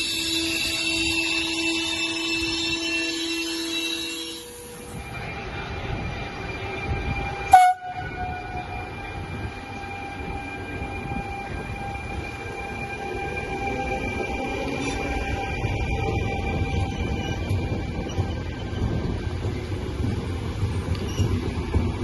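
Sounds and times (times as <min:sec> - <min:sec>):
short sharp train horn toot: 0:00.0 - 0:04.9, 0:07.5 - 0:08.8
train rumbling: 0:00.0 - 0:22.0.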